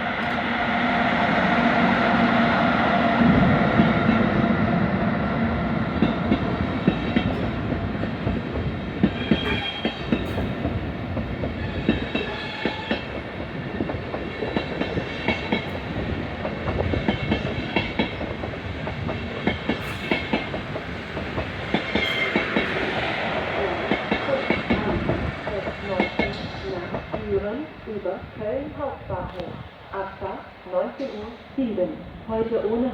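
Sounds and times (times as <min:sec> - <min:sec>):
train wheels clacking: 0:06.0 - 0:27.6, 0:31.0 - 0:31.8.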